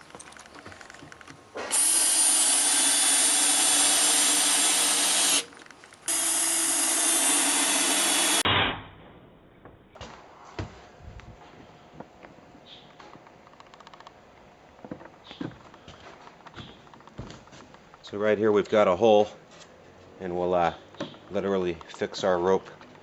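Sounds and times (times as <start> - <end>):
power tool motor whine: 1.6 - 8.4.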